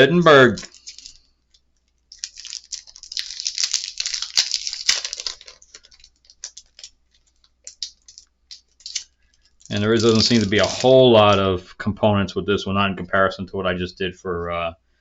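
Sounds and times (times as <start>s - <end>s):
cards rustling: 0.4s - 11.5s.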